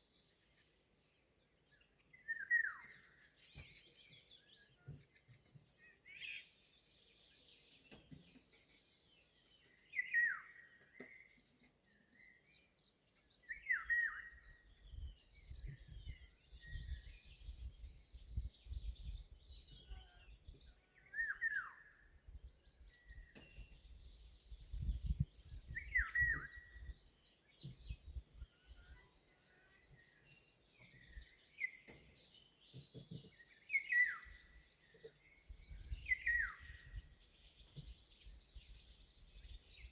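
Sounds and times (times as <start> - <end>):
chorus of small birds singing: 0.0 - 39.9
low wind rumble on microphone: 14.4 - 20.7, 22.2 - 28.8, 35.5 - 39.9.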